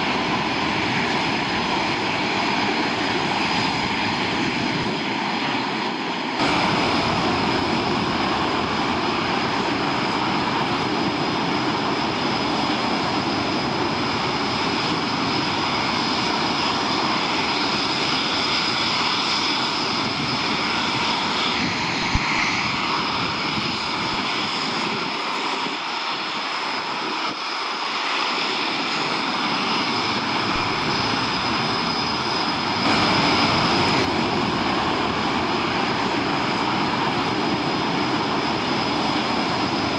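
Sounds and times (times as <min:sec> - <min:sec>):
aircraft engines running: 0:00.0 - 0:39.9
high whine: 0:06.3 - 0:18.7, 0:29.0 - 0:39.9.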